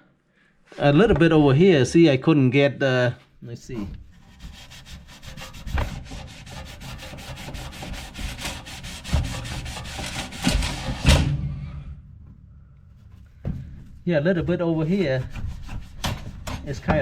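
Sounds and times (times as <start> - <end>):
scrubbing grease by hand: 3.7 - 11.0, 12.9 - 17.0.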